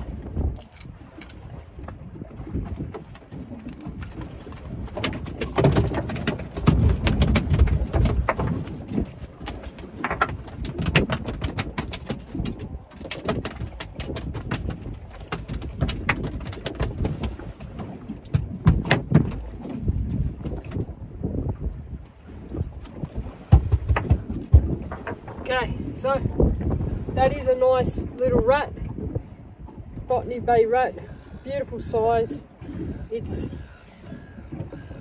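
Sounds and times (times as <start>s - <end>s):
knocks and thumps in boat: 0.0s - 30.2s
fish thrashing against hull: 2.8s - 20.9s, 22.7s - 25.5s.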